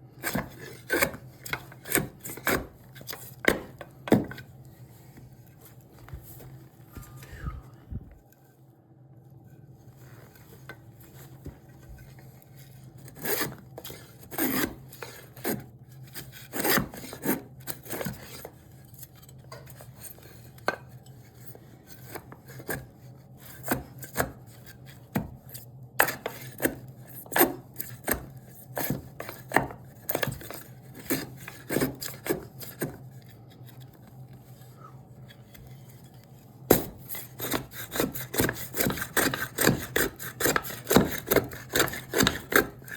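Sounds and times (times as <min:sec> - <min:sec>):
steady low hum: 0:00.0 - 0:12.9
hand tool scraping wood: 0:00.2 - 0:04.5, 0:10.3 - 0:18.6, 0:19.2 - 0:42.9.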